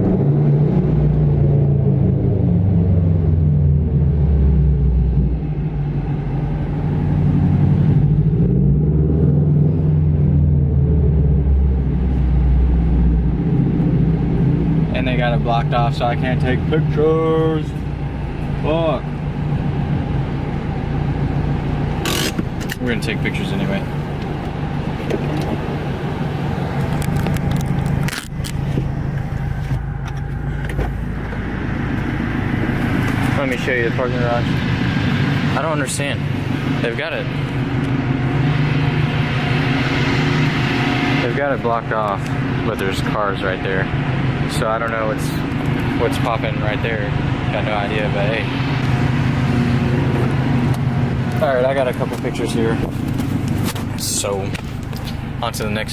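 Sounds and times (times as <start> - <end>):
car engine running while driving: 0.0 - 55.9
road noise: 0.0 - 55.9.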